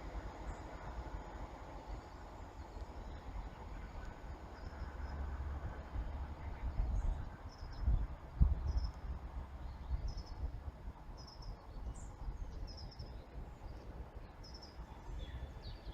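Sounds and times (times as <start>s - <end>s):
faint bird chirps: 11.2s - 15.9s.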